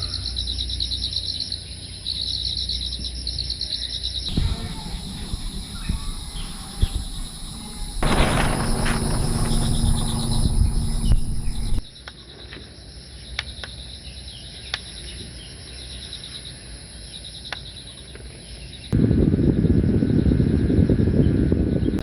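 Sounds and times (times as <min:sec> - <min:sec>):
insects chirping in trills: 0:00.0 - 0:22.0
low rumbling noise: 0:04.3 - 0:11.8
steady high whine: 0:04.3 - 0:11.9.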